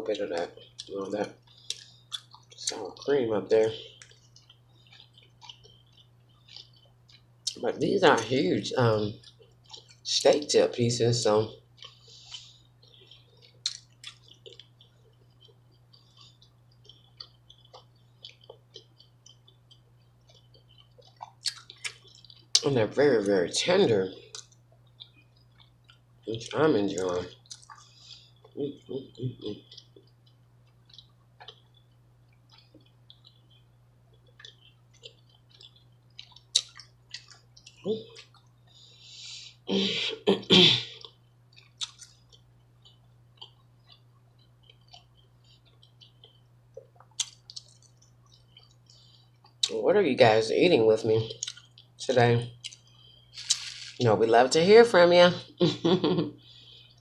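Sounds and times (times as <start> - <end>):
chewing with wet mouth clicks: 0.2 - 10.6, 11.5 - 23.4, 24.1 - 38.9, 41.0 - 49.8, 51.3 - 54.0
person coughing: 39.7 - 41.0.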